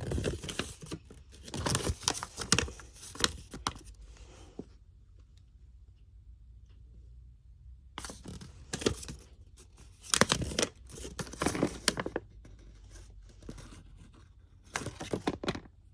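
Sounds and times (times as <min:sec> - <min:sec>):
packaging rustling and tearing: 0:00.0 - 0:03.9, 0:08.0 - 0:12.2.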